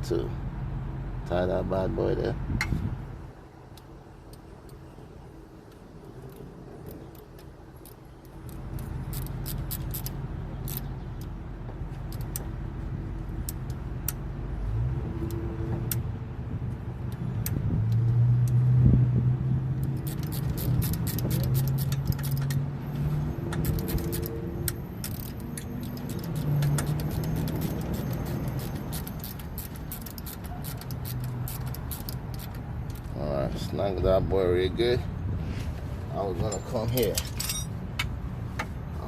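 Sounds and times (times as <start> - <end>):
engine humming: 2.4 - 34.1
metallic tool clinks: 25.1 - 31.2, 36.5 - 37.8.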